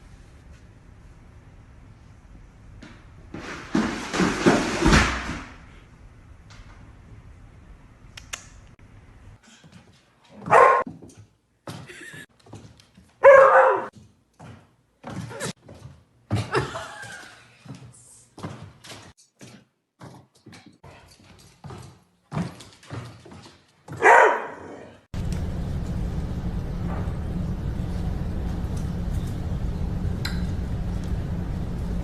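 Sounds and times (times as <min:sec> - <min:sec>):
dog barking: 0:10.4 - 0:10.8, 0:13.2 - 0:13.9, 0:23.9 - 0:25.0.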